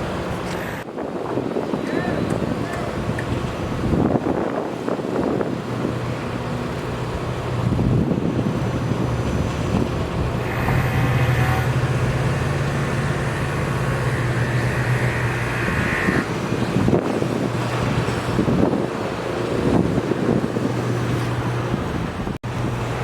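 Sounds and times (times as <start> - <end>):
vehicle engine rumbling: 7.0 - 23.0
hissing whine: 10.4 - 16.8.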